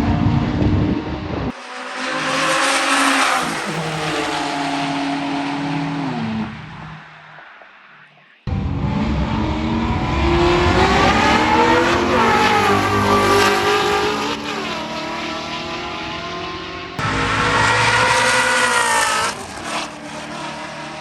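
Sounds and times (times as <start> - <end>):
race car engine accelerating: 8.5 - 21.0.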